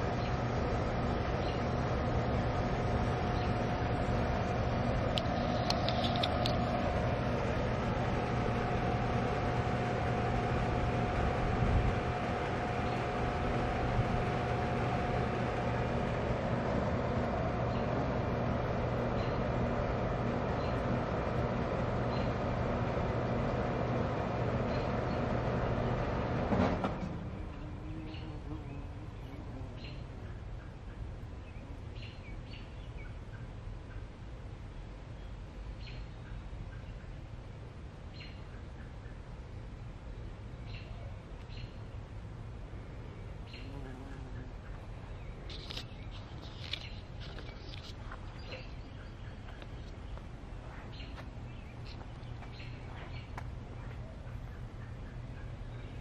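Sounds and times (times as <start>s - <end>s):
small birds chirping: 0.0s - 11.4s, 17.2s - 22.7s, 27.4s - 34.1s, 38.1s - 56.0s
faint outdoor background noise: 0.0s - 56.0s
low engine rumble: 0.0s - 56.0s.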